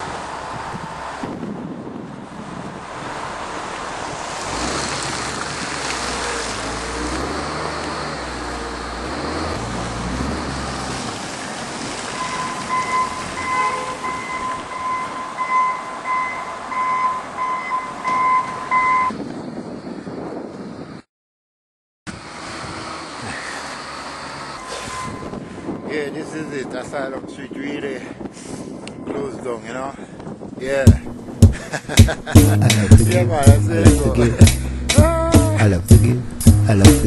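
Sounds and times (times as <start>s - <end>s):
wind noise on microphone: 0.0s - 16.2s, 16.8s - 21.1s, 22.1s - 23.6s, 24.5s - 35.6s
vehicle engine rumbling: 0.0s - 20.9s, 22.1s - 26.9s, 30.3s - 37.0s
high electronic beeping: 12.2s - 19.2s, 24.6s - 25.4s.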